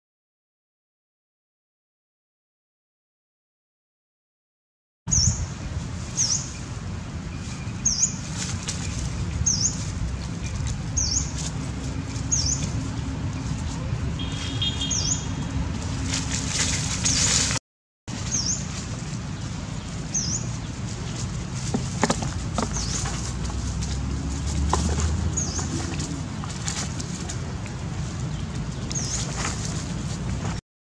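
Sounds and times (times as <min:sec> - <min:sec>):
steady low rumble: 0:05.1 - 0:30.6
small bird chirping: 0:07.4 - 0:11.5, 0:14.2 - 0:15.4, 0:19.8 - 0:21.2.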